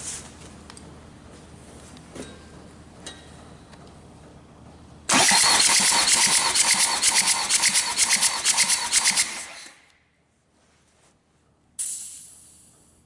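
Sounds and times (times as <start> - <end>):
diesel engine cranked by starter: 5.1 - 9.8.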